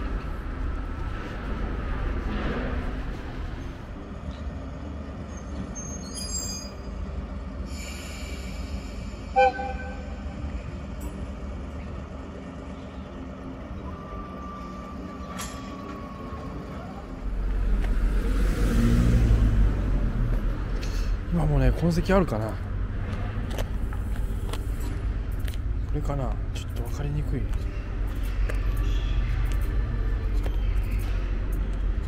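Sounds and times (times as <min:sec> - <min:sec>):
locomotive low rumble: 0:00.0 - 0:32.0
passing electric train rumble: 0:00.0 - 0:32.0
train horn toot: 0:09.2 - 0:10.4.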